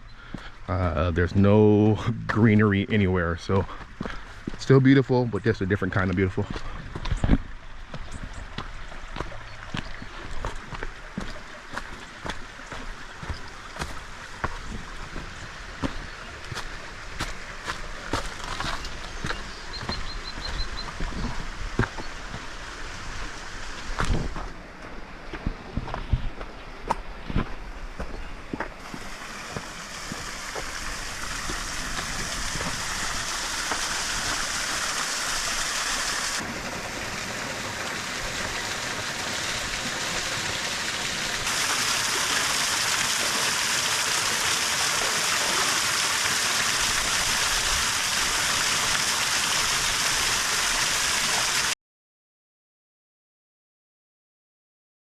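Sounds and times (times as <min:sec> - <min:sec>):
waterfall water rushing: 0:10.2 - 0:24.1, 0:28.8 - 0:51.8.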